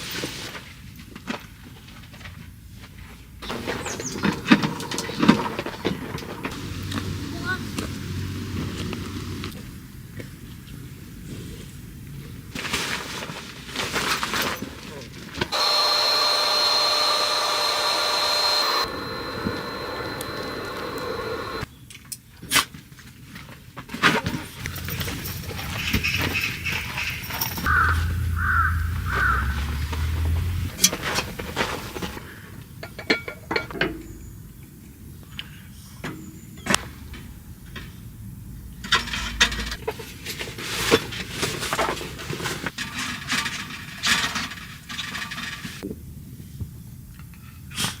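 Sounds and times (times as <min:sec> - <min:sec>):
scraping and rustling: 0:11.3 - 0:21.6, 0:28.9 - 0:32.5, 0:38.8 - 0:45.8
small electric motor whining: 0:15.5 - 0:21.7.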